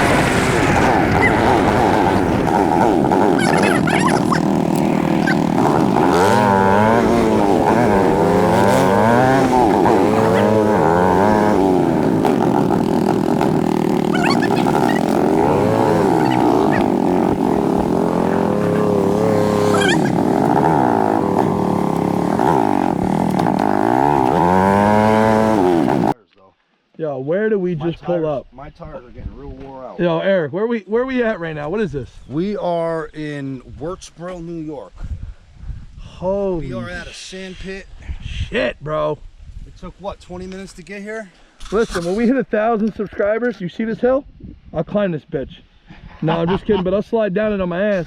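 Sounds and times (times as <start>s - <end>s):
atv engine revving: 0.0s - 26.2s.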